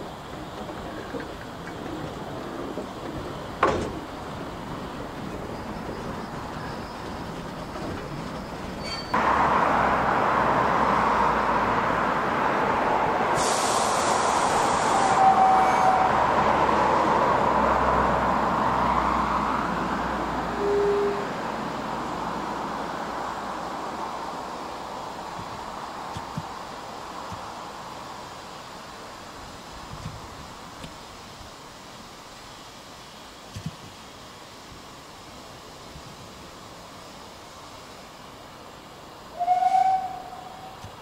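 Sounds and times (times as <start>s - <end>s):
train carriage rumble and rattle: 0.0s - 31.7s
brief high hiss: 13.4s - 16.0s.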